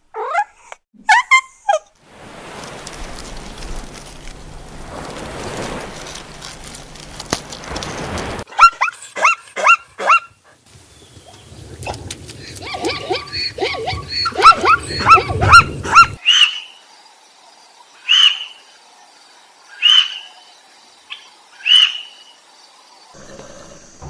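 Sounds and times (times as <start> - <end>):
quick overlapping animal calls: 23.2 - 24.0.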